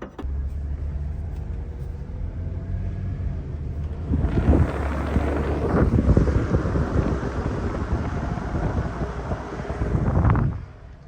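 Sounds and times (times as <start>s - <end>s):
road and tyre rumble: 0.0s - 11.0s
wind buffeting microphone: 3.6s - 11.0s.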